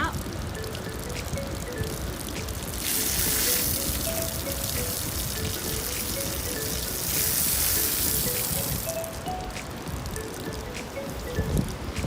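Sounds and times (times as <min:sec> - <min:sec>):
light melody of short notes: 0:00.0 - 0:12.0
running water splashing: 0:01.8 - 0:10.8.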